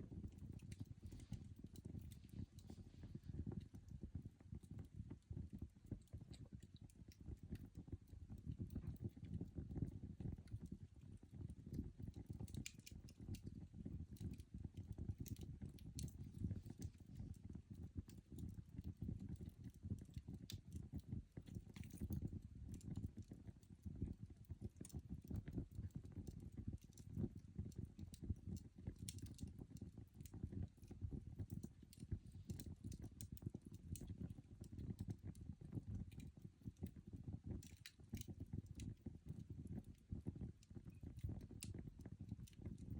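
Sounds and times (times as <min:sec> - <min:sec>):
low fire rumble: 0:00.0 - 0:42.9
coal fire crackling: 0:00.2 - 0:03.7, 0:11.9 - 0:23.4, 0:28.6 - 0:35.2, 0:37.6 - 0:39.0
sharp snaps and pops: 0:11.8 - 0:23.6, 0:27.9 - 0:37.0, 0:37.6 - 0:39.9.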